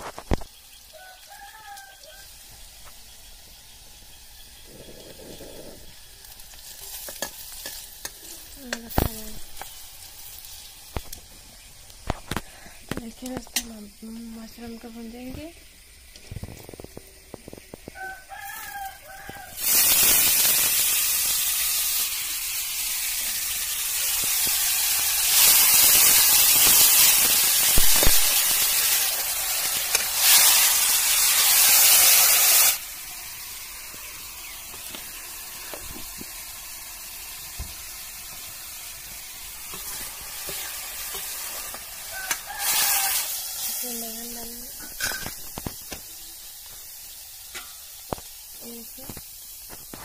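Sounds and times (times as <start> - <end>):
vegetables sizzling in hot oil: 0.0 - 50.0
rooster crowing: 0.9 - 2.4, 17.9 - 19.7, 42.0 - 43.4.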